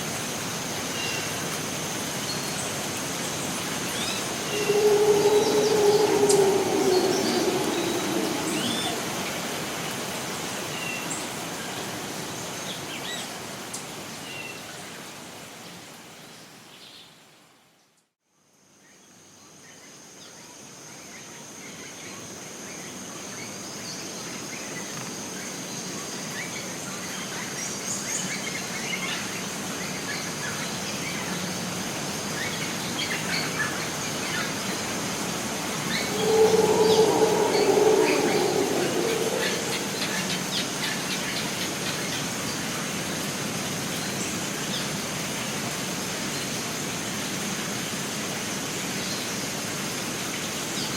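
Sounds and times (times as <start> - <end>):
rainforest ambience: 0.0 - 17.6, 18.8 - 50.9
steady high whine: 4.3 - 10.0, 35.8 - 41.2.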